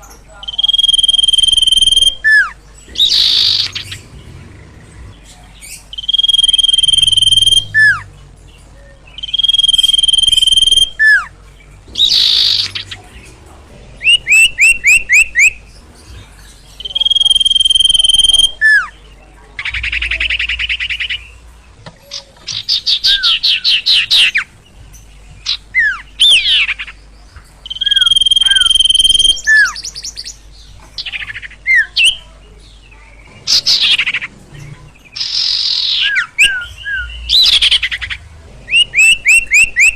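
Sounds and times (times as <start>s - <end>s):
bird singing whistled phrases: 0.4s - 4.0s, 5.7s - 8.1s, 8.8s - 11.3s, 11.9s - 13.0s, 14.0s - 15.6s, 16.8s - 19.0s, 22.5s - 24.5s, 27.6s - 30.4s, 31.0s - 32.2s, 35.2s - 39.9s.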